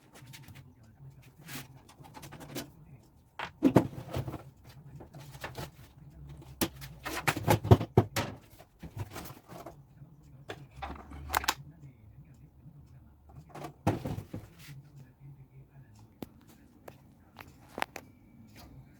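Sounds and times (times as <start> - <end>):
faint low hum: 0.0 - 18.9
objects being handled and set down: 10.5 - 11.6, 13.6 - 14.6.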